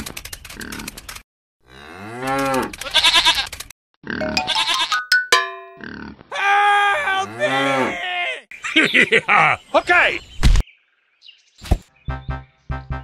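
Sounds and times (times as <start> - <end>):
wordless grunting vocal sounds: 6.7 - 8.5.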